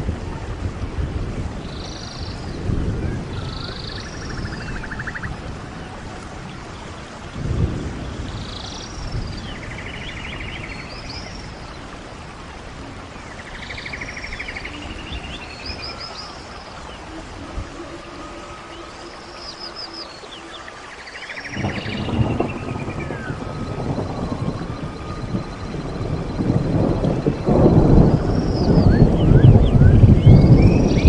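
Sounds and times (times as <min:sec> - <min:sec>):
wind blowing over microphone: 0:00.0 - 0:31.0
birds calling: 0:03.3 - 0:05.5.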